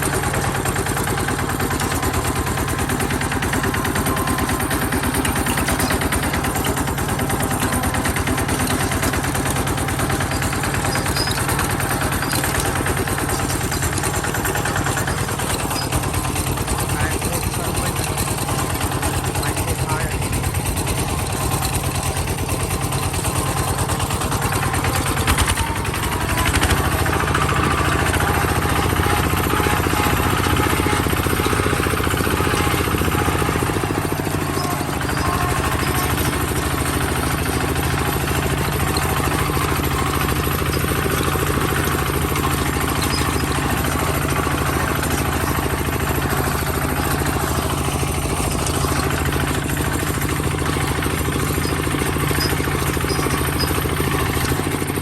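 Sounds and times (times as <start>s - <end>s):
tractor engine clattering: 0.0s - 55.0s.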